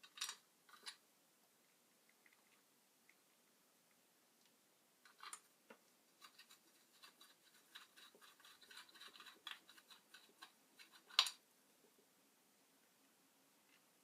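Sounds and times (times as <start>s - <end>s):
faint scratching: 6.1s - 12.0s.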